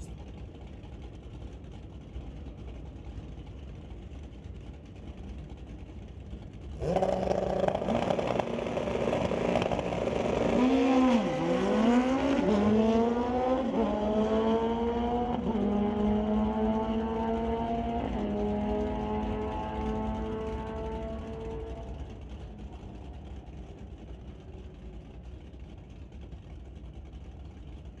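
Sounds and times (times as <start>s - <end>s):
motorcycle engines revving: 6.8s - 24.0s.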